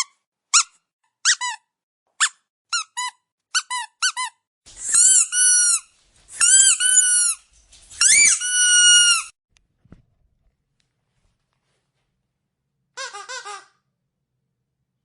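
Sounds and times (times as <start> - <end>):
squeaky dog toy squeaking: 0.0 - 7.4, 8.0 - 9.3, 13.0 - 13.8.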